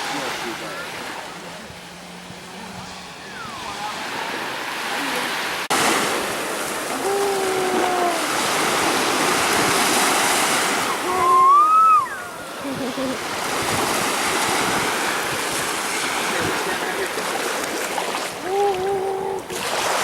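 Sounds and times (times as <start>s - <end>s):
ocean surf washing: 0.0s - 20.0s
person calling out: 6.9s - 8.4s, 11.0s - 12.2s, 18.4s - 19.6s.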